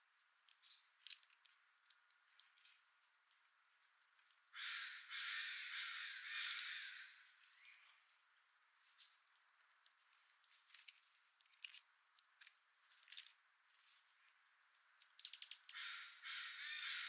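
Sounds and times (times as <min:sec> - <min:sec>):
harsh raspy bird call: 0:04.6 - 0:07.2, 0:15.7 - 0:17.0.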